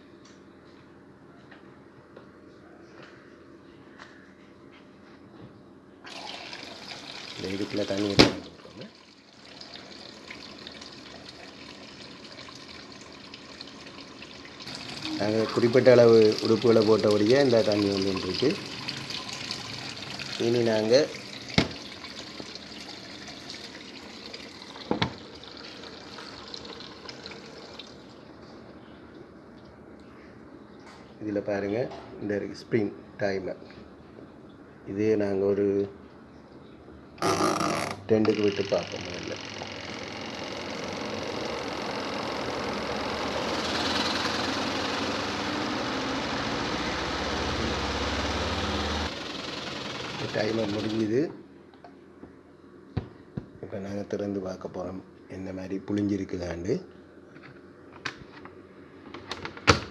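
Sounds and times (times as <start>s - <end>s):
water filling washing machine tub: 6.1s - 28.2s, 38.4s - 51.3s
spin-dryer motor hum and whirr: 9.5s - 25.1s, 38.6s - 51.2s.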